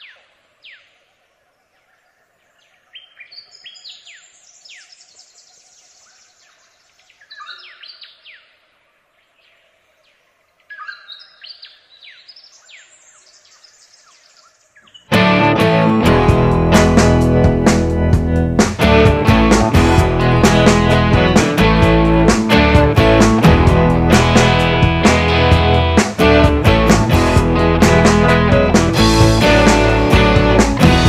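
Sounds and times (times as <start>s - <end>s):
forest birds whistling: 1.8s - 8.5s, 9.4s - 15.2s
acoustic guitar music: 15.1s - 31.0s.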